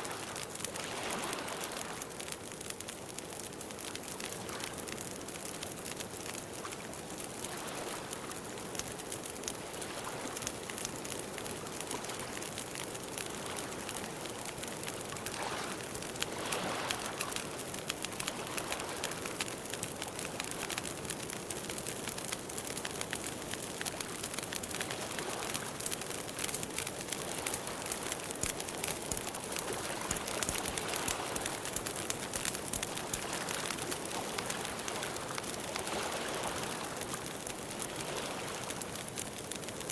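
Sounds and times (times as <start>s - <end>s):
campfire crackling and hissing: 0.0s - 39.9s.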